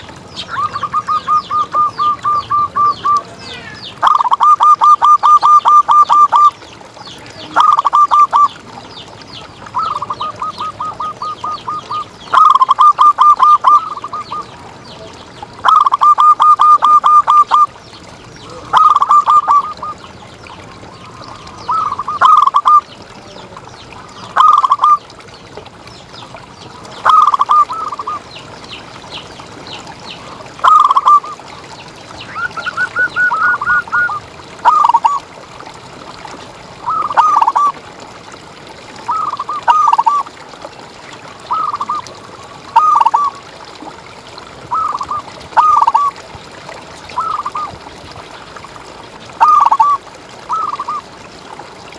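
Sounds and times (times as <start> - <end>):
dove cooing: 0.0 - 6.5, 9.8 - 14.5, 15.6 - 17.7, 18.6 - 20.0, 27.0 - 28.2, 30.6 - 31.4, 32.3 - 35.2, 36.8 - 37.8, 42.8 - 43.4, 44.7 - 46.1, 47.2 - 47.7, 49.4 - 51.0.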